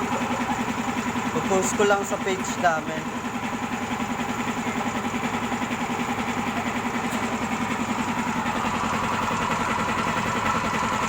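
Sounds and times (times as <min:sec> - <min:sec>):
air compressor running: 0:00.0 - 0:11.0.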